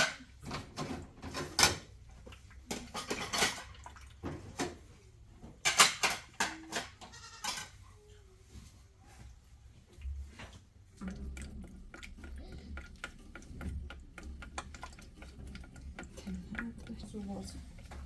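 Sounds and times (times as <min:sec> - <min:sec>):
goat or sheep bleating: 0:07.1 - 0:07.5.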